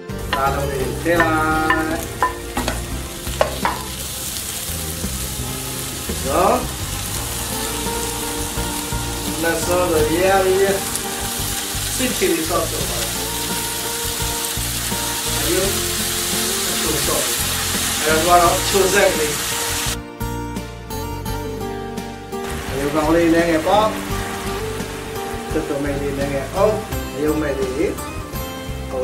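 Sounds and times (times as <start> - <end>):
meatballs sizzling in oil: 0.1 - 20.0, 22.4 - 27.6
sharp knocks in pan: 1.2 - 4.0.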